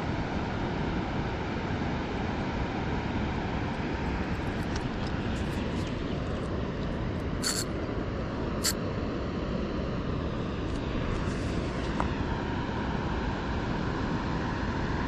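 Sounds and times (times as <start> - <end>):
low outdoor rumble: 0.0 - 15.0
short sharp high clicks: 7.4 - 7.6.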